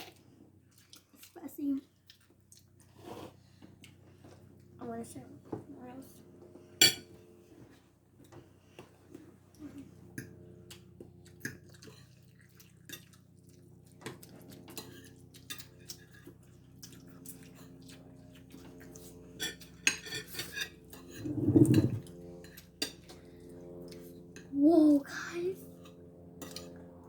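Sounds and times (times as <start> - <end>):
cutlery clinking on a plate: 19.4 - 22.0
low hum: 21.1 - 22.2.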